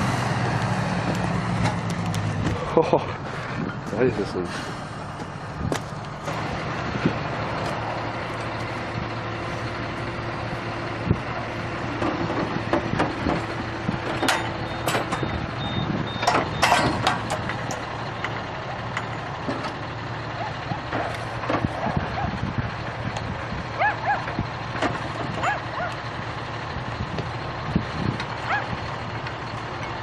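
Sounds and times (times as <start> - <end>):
tractor engine running: 0.0 - 30.0
sharp metal clanks: 16.3 - 17.6.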